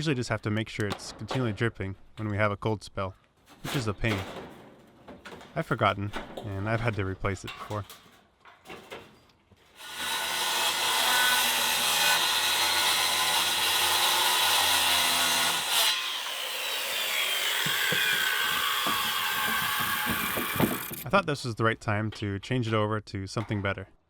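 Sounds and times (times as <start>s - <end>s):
power tool cutting: 9.8s - 21.0s.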